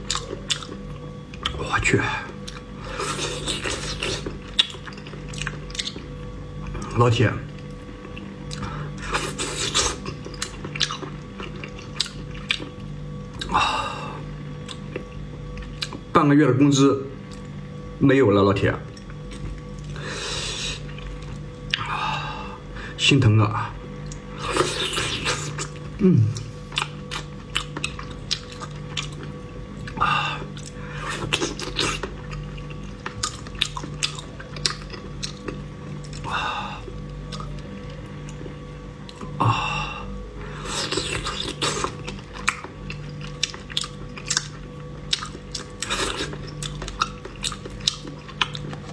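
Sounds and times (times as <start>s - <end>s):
chewing and biting: 0.0s - 1.7s, 2.3s - 6.9s, 7.5s - 13.6s, 14.6s - 16.1s, 24.0s - 39.4s, 40.5s - 48.9s
person humming: 26.0s - 26.5s.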